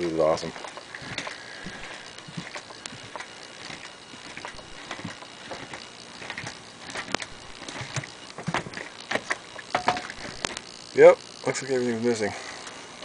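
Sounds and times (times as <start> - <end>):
footsteps with light knocks: 0.4 - 10.0.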